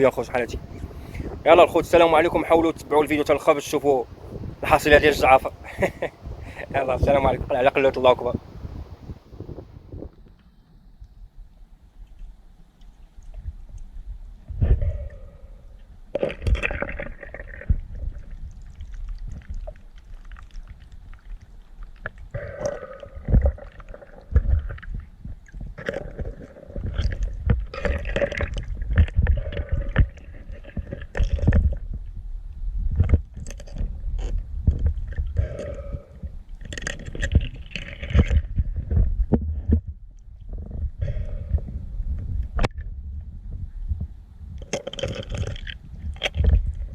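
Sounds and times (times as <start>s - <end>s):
underwater water gurgling: 0.0s - 46.9s
underwater knocks and thuds: 16.1s - 19.8s, 22.3s - 46.9s.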